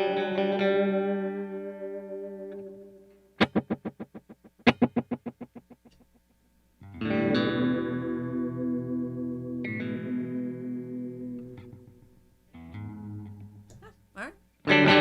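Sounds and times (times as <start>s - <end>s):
electric guitar with echoing delay: 0.0s - 5.8s, 6.8s - 12.0s, 14.7s - 15.0s.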